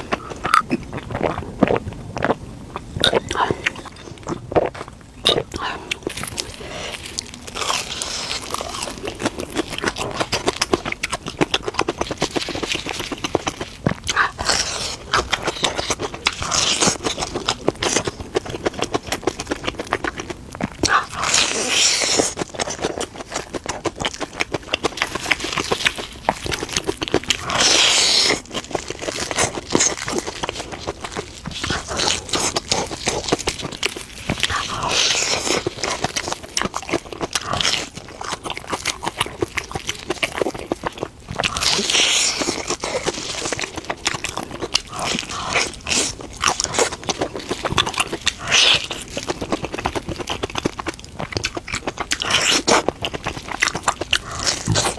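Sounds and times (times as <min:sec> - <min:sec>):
crunchy chewing and biting: 0:00.0 - 0:54.9.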